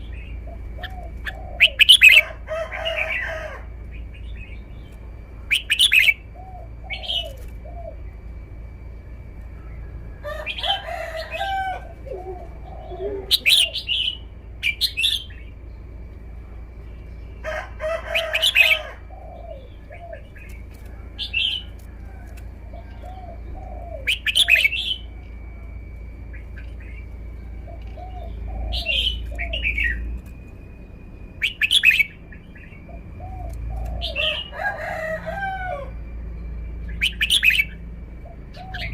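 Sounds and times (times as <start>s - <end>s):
bird whistling phrases: 0.8s - 2.3s, 5.5s - 8.0s, 10.4s - 15.4s, 23.2s - 25.2s, 27.7s - 30.1s, 31.3s - 32.8s.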